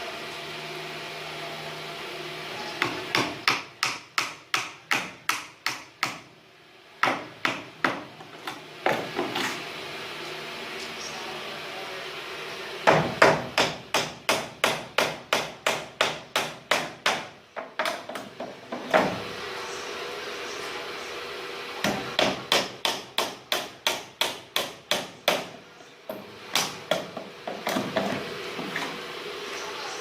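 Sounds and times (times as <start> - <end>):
hammer striking: 2.8 - 6.3, 12.9 - 18.0.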